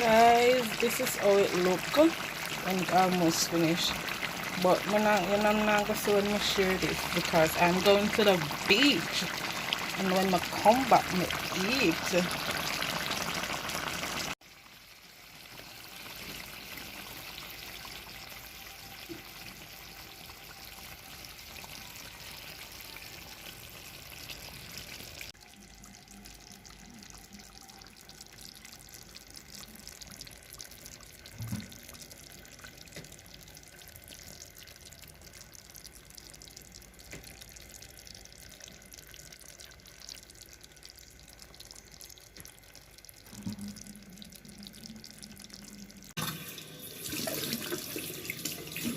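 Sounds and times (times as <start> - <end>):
tap water running into sink: 46.1 - 48.9.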